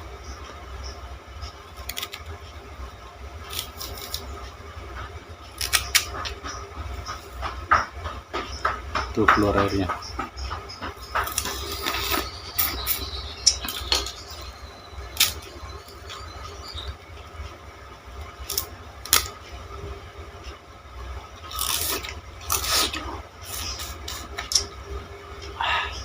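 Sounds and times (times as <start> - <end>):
chewing sugarcane crunches: 3.5 - 4.3, 5.5 - 6.5, 10.9 - 16.8, 18.4 - 19.4, 21.5 - 24.7.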